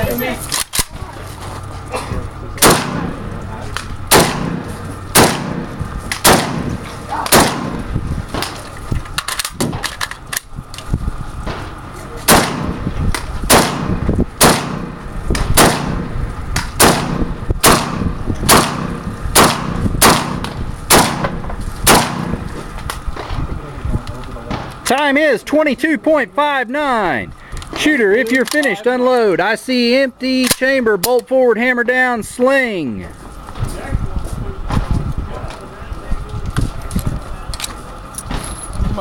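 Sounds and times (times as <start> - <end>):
rifle shots: 2.6 - 3.2, 4.1 - 8.6, 12.3 - 12.8, 13.5 - 22.5.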